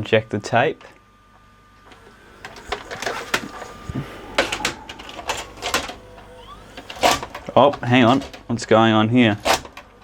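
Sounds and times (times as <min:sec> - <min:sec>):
rising motor whine: 0:01.8 - 0:08.6.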